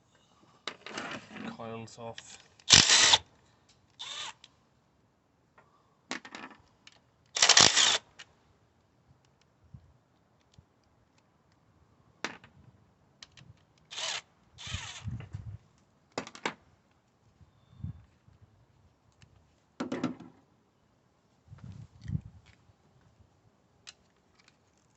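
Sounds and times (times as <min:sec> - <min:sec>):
hand ratchet ratcheting: 0:02.6 - 0:03.2.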